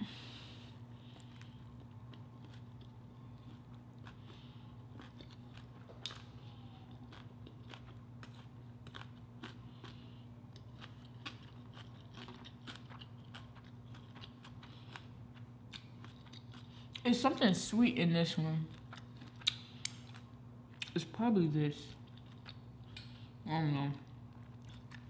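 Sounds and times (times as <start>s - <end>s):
faint low hum: 0.0s - 25.0s
chewing with wet mouth clicks: 6.9s - 17.0s, 18.7s - 21.0s, 22.0s - 23.2s, 24.3s - 25.0s.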